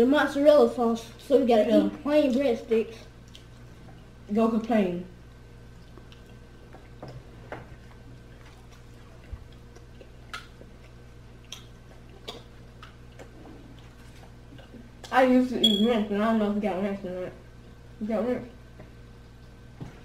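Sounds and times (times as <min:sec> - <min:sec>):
steady low hum: 0:00.0 - 0:20.0
people chewing food: 0:03.0 - 0:04.3, 0:05.2 - 0:15.2.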